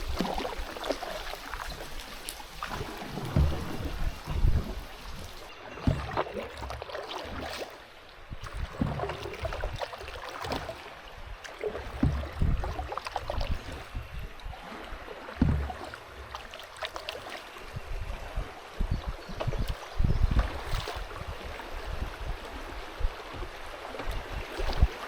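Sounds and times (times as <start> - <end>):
small splashes: 0.0 - 18.2, 19.3 - 25.0
water splashing and gurgling: 0.0 - 25.0
low thump: 3.1 - 5.2, 5.8 - 6.3, 8.7 - 9.6, 11.9 - 12.8, 15.4 - 16.4.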